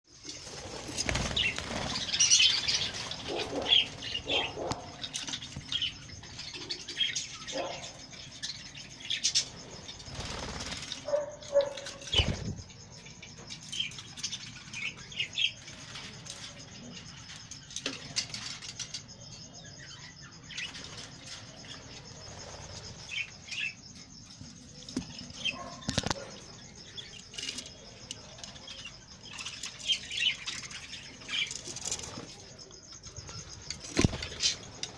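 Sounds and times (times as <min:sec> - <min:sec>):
wing flutters: 0:00.2 - 0:05.0, 0:09.4 - 0:12.8, 0:20.6 - 0:23.2, 0:31.3 - 0:34.9
budgerigars chirping: 0:01.4 - 0:06.0, 0:06.6 - 0:08.1.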